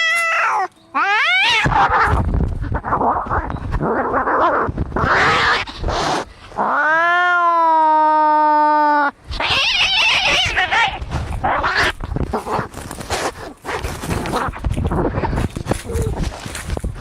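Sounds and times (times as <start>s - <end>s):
cat yowling: 0.0s - 2.2s, 6.6s - 12.0s
cats fighting: 0.0s - 8.0s, 9.0s - 17.0s.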